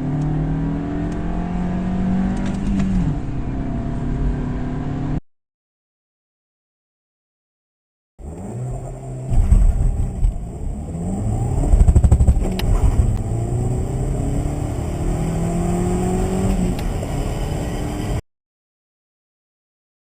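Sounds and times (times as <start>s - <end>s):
car engine accelerating hard: 0.0s - 5.2s, 8.2s - 18.2s.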